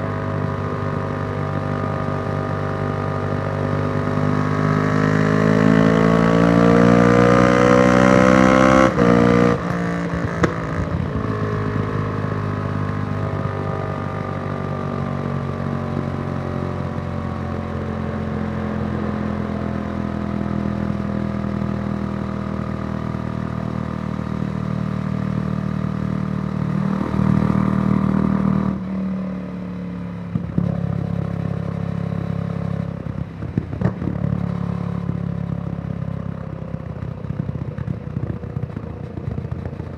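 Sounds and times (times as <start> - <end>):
motorcycle engine revving: 0.0 - 11.5, 21.5 - 29.7.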